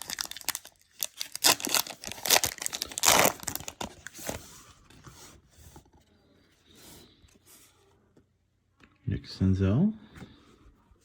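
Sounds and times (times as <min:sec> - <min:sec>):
foil wrapper tearing and crinkling: 0:00.0 - 0:04.1.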